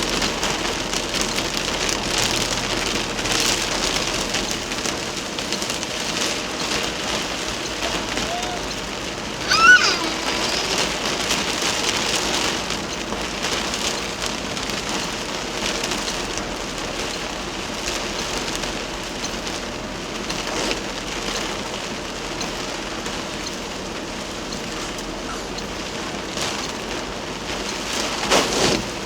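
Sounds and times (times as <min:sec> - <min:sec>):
heavy rain hissing: 0:00.0 - 0:18.0
sharp raindrop impacts: 0:00.0 - 0:29.0.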